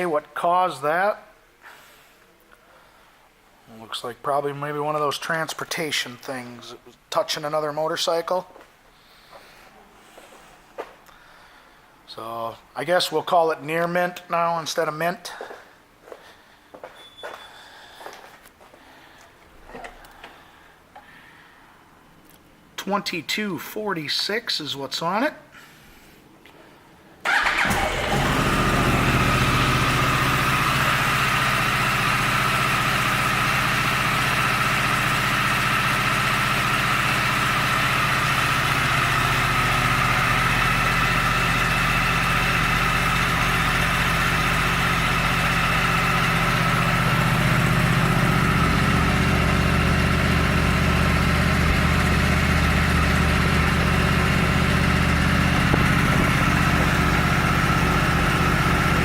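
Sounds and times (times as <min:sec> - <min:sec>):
motorcycle engine idling: 0:27.3 - 0:59.0.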